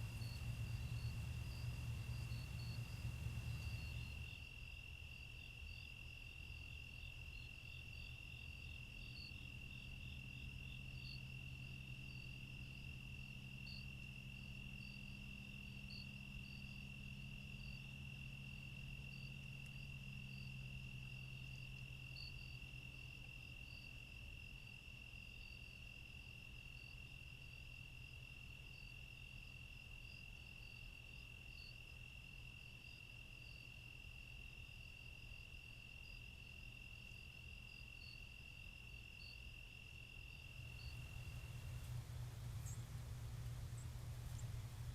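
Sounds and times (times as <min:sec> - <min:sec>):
low hum: 0:00.0 - 0:04.3, 0:40.5 - 0:44.9
crickets trilling: 0:00.0 - 0:04.8, 0:07.1 - 0:44.9.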